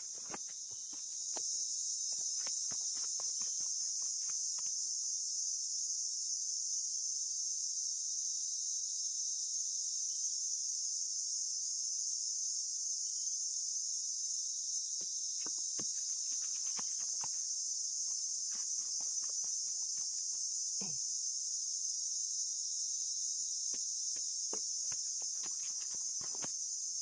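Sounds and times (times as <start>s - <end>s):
footsteps: 0.0s - 1.5s, 2.1s - 4.8s, 15.4s - 17.5s, 18.1s - 20.5s, 23.7s - 26.6s
high-pitched insect chorus: 0.0s - 27.0s.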